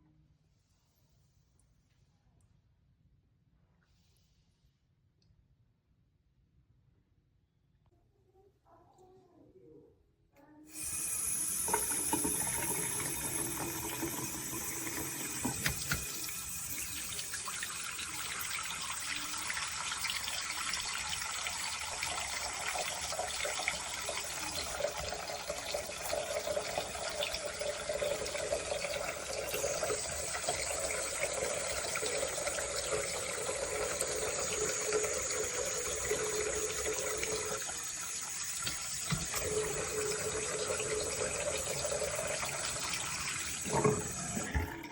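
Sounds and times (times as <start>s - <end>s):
faucet water pouring into sink: 10.7s - 44.9s.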